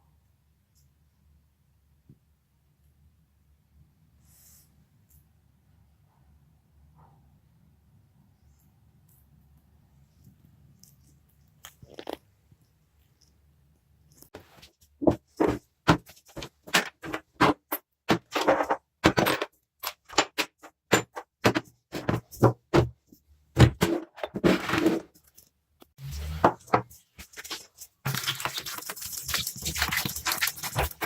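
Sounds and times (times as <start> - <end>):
grinding or brushing noise: 26.0 - 31.0
metal scraping: 26.0 - 31.0.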